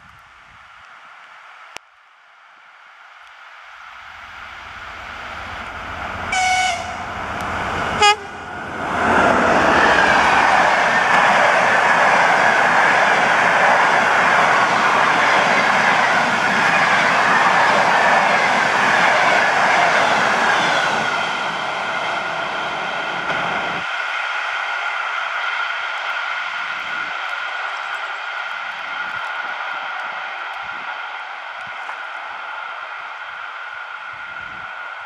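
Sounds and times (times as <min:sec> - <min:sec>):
diesel locomotive rumble: 0:04.2 - 0:11.9
train horn blasts: 0:06.3 - 0:07.2, 0:07.9 - 0:08.5.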